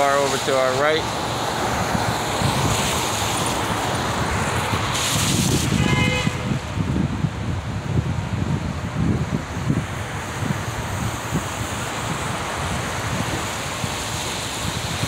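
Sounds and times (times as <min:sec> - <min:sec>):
tyres on wet road: 0:00.0 - 0:15.0
wind buffeting microphone: 0:00.0 - 0:15.0
loud hissing swish: 0:01.6 - 0:05.9.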